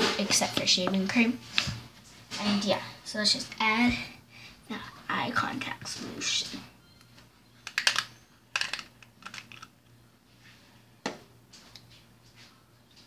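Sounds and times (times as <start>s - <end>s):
plastic items clicking: 7.6s - 9.7s.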